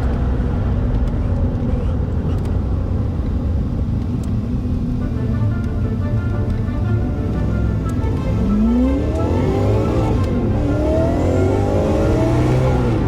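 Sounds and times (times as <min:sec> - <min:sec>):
car engine low rumble: 0:00.0 - 0:13.0
music: 0:04.9 - 0:13.0.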